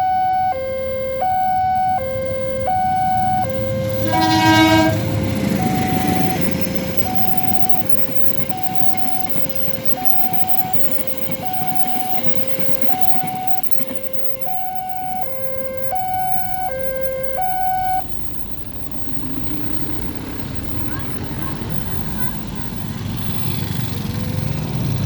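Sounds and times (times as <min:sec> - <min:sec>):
level crossing two-tone alarm: 0:00.0 - 0:18.2
passing train rumble: 0:00.0 - 0:25.0.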